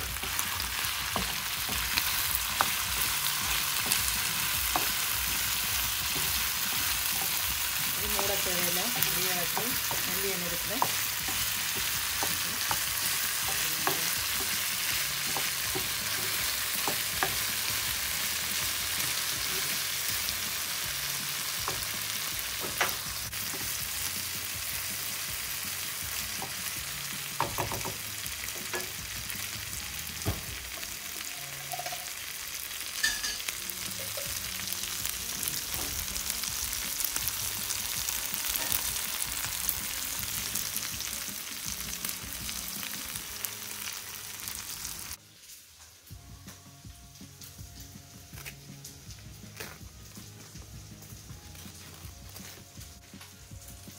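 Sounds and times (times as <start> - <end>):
liver sizzling in frying pan: 0.0 - 53.9
wooden spatula knocking on pan: 27.4 - 28.0.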